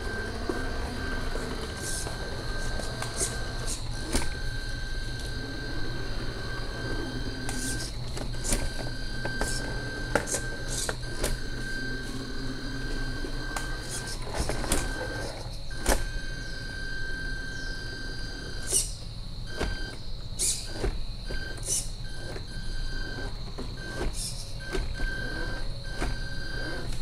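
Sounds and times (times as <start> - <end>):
low steady hum: 0.0 - 20.4
high motor whine: 0.0 - 27.0.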